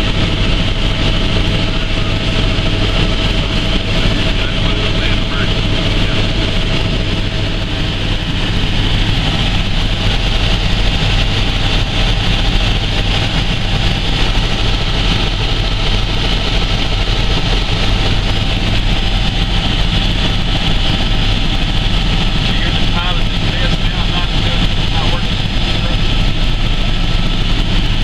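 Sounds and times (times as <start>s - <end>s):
helicopter engine and rotor drone: 0.0s - 28.0s.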